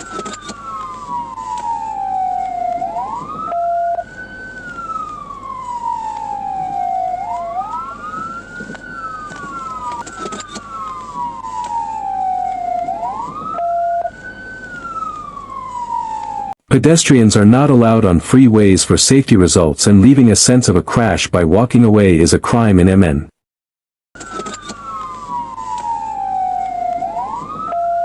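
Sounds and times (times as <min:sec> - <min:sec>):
emergency siren wailing: 0:00.0 - 0:16.6, 0:24.2 - 0:28.0.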